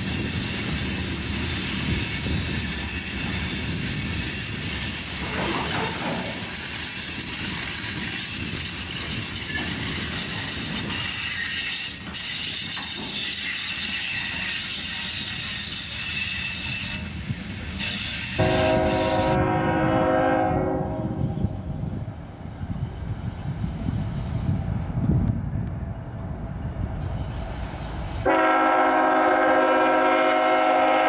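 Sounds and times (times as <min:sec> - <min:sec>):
freight cars rolling: 0:00.0 - 0:14.8
locomotive air horn chord: 0:18.4 - 0:21.7, 0:28.3 - 0:31.0.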